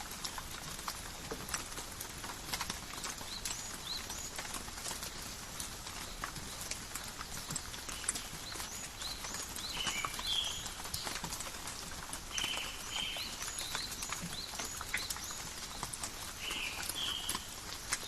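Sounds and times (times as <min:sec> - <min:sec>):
rain pattering in forest: 0:00.0 - 0:18.0
bird chirping: 0:08.0 - 0:11.2, 0:16.4 - 0:17.6.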